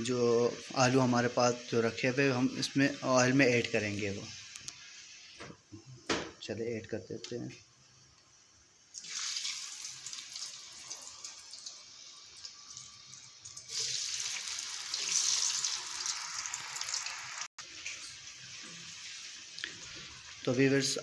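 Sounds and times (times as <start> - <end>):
potato strips sizzling in oil: 0.0 - 5.4, 7.9 - 21.0.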